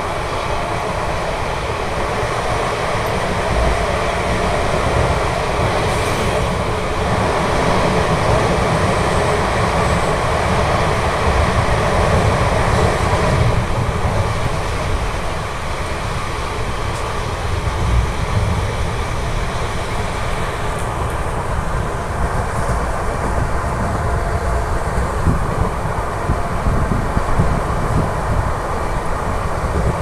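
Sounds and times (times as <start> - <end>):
rushing wind: 0.0 - 30.0
train wheels on rails: 0.0 - 30.0.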